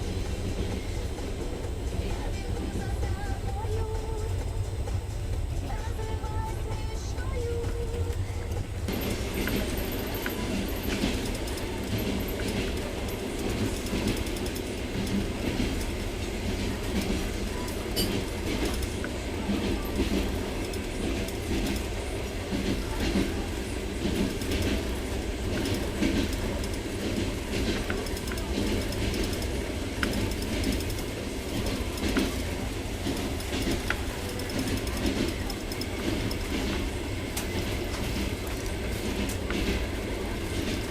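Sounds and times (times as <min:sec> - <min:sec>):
rail joint clicks: 0:00.0 - 0:40.9
train wheels rumbling on rail: 0:00.0 - 0:40.9.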